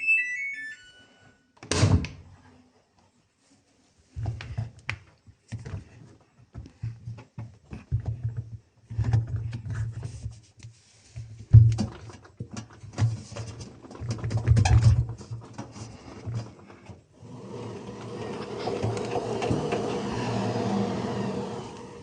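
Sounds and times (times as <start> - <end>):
washing machine motor humming: 17.2 - 22.0
steady whirring: 17.4 - 22.0.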